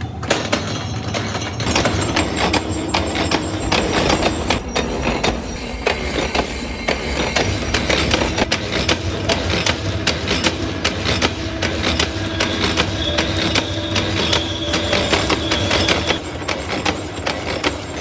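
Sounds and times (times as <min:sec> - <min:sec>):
machine hum: 0:00.0 - 0:18.0
thin high whine: 0:01.6 - 0:08.5, 0:09.1 - 0:18.0.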